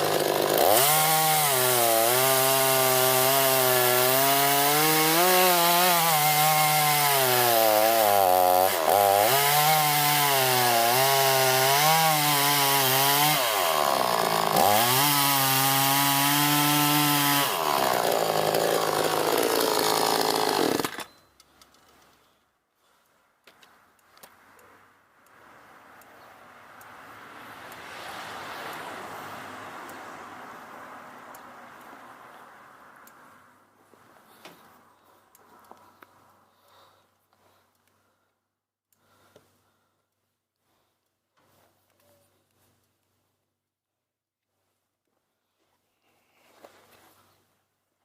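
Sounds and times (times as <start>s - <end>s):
chainsaw cutting wood: 0.0s - 21.1s.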